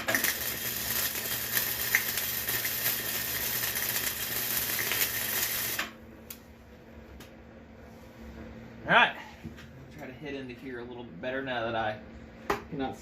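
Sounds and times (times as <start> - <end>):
arc welder crackling sizzle: 0.0 - 6.5.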